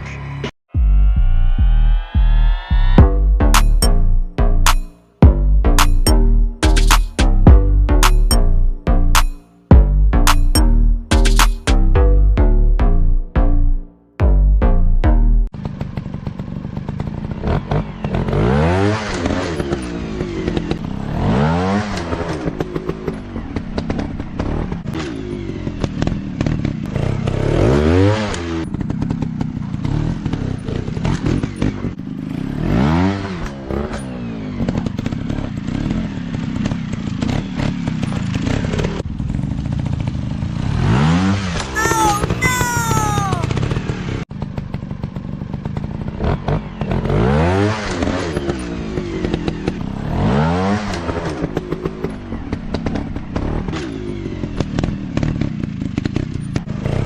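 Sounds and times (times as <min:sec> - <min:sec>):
high whine sliding downward: 0:00.7 - 0:04.5.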